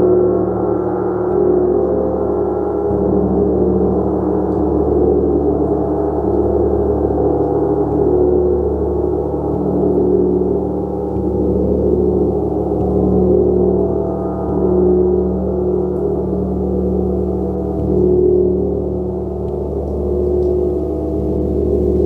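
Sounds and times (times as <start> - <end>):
gong ringing: 0.0 - 22.0.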